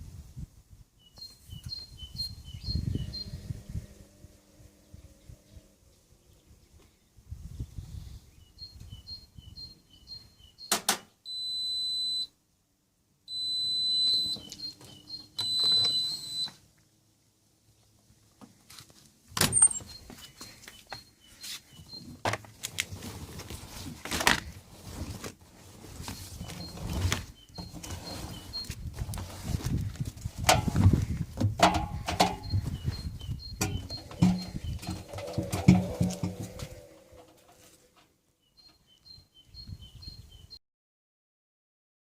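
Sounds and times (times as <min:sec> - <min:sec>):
washing machine beeper tone: 0:11.3 - 0:12.3, 0:13.3 - 0:16.6, 0:32.4 - 0:36.3.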